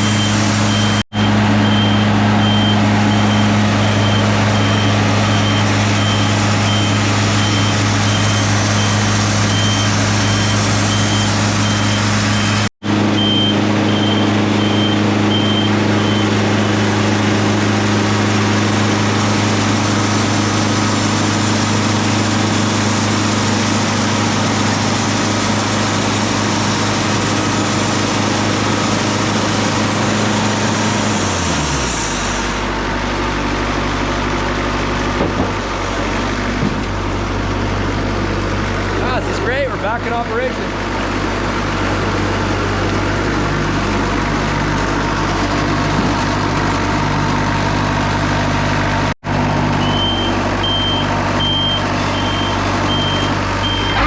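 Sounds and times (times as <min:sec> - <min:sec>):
backup alarm beeping: 0:00.0 - 0:16.4, 0:36.6 - 0:38.3, 0:49.8 - 0:54.0
diesel engine running: 0:00.0 - 0:54.0.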